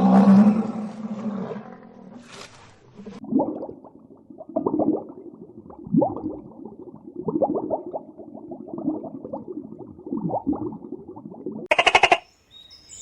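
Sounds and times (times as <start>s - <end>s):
animal growls and grunts: 0.0s - 2.4s.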